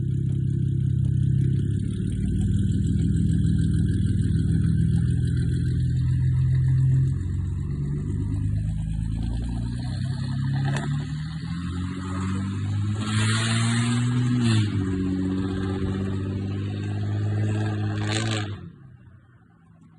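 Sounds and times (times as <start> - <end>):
diesel engine running: 0.0 - 18.4.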